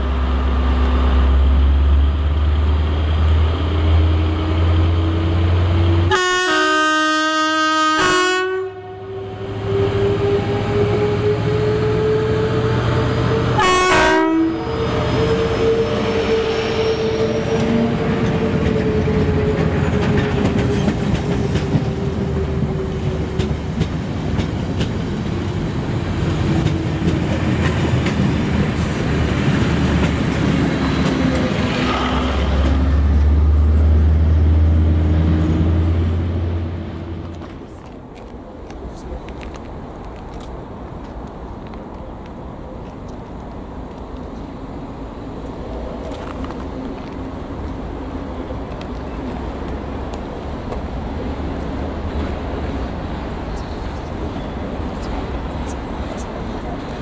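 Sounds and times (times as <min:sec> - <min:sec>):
locomotive engine drone: 0:00.0 - 0:57.0
train horn: 0:06.0 - 0:12.2, 0:13.2 - 0:16.6
train wheels clattering: 0:17.2 - 0:32.9.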